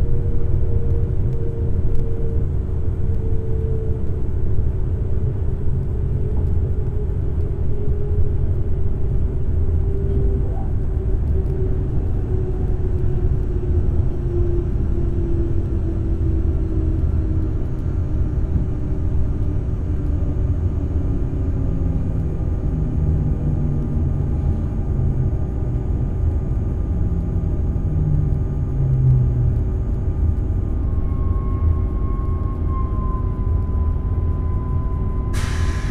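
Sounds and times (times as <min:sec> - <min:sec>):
electric train rumble: 0:00.0 - 0:35.9
train motor whine: 0:29.1 - 0:35.9.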